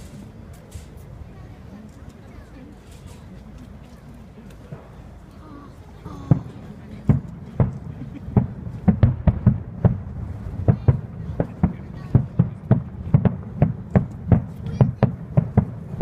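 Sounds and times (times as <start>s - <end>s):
fireworks bangs: 6.2s - 16.0s.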